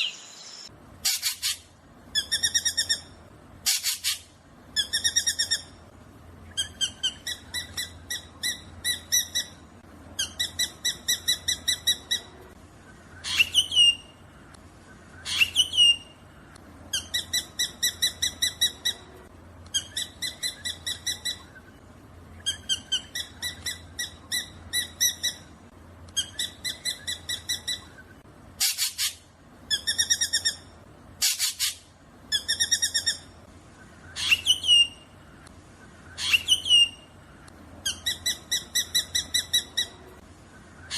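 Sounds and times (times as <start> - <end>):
bird calling with ringing notes: 15.1 - 16.2, 34.0 - 35.4, 36.0 - 40.0.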